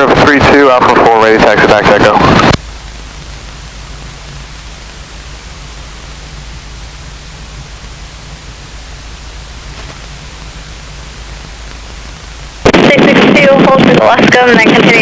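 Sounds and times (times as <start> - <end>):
low aircraft engine drone: 0.0 - 15.0
headset hiss: 2.4 - 13.6.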